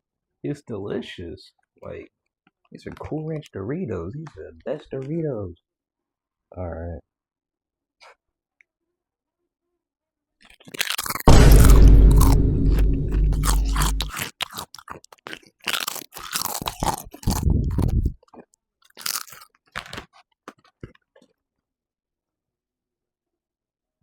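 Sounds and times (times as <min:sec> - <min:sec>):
crunching and chewing chips: 0:10.4 - 0:21.7
deep boom: 0:11.3 - 0:14.2.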